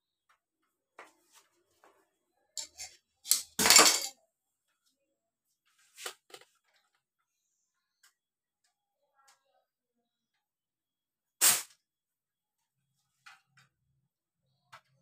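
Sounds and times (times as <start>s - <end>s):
hard objects clinking and knocking: 2.6s - 4.2s
objects clattering: 2.6s - 4.2s.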